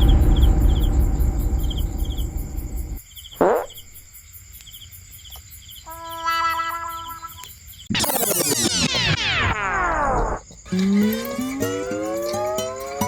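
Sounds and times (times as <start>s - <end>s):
loud low rumble: 0.0s - 3.0s
crickets chirping: 0.0s - 7.9s, 9.2s - 13.0s.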